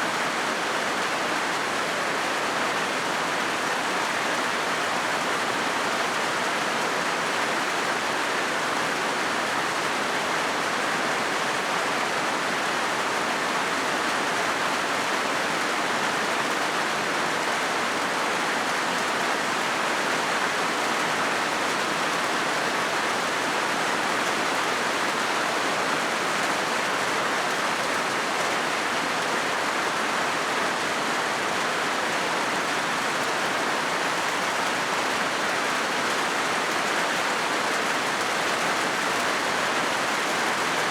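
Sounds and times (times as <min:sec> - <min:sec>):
rain on a metal roof: 0:00.0 - 0:40.9.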